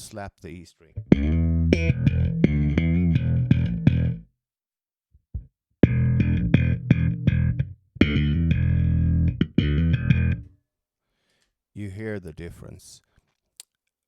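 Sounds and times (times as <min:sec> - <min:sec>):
slap bass popping notes: 0:01.0 - 0:04.2, 0:05.4 - 0:10.5.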